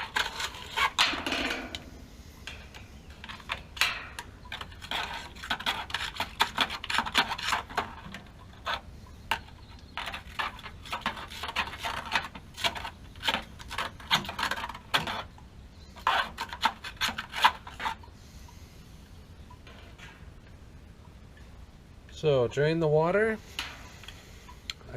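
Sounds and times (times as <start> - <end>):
scraping and rubbing: 0.0 - 18.1.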